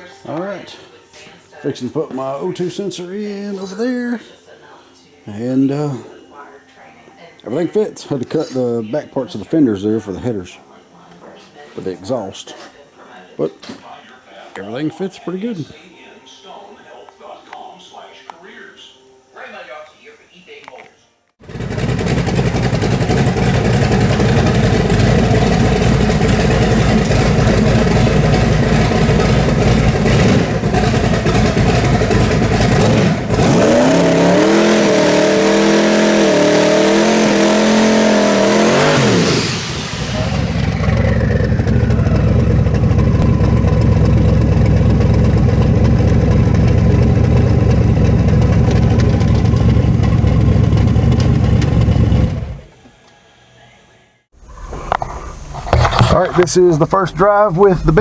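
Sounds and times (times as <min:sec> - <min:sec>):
loud engine revving: 0:21.4 - 0:52.7.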